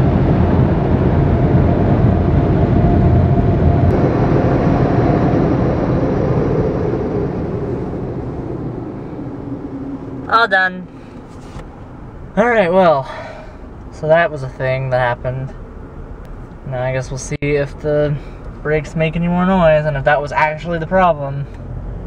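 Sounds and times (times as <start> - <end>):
car wash dryer blowers: 0.0 - 11.7.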